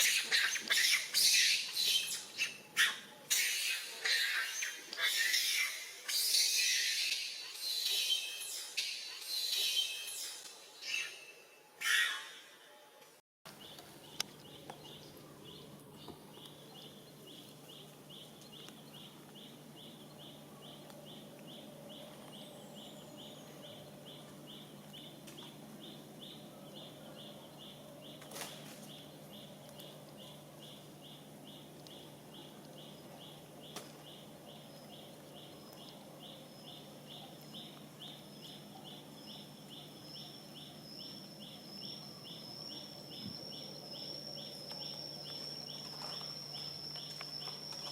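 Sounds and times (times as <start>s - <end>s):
steady low hum: 13.5s - 47.9s
insects chirping: 30.6s - 47.9s
wavering insect trill: 41.0s - 47.9s.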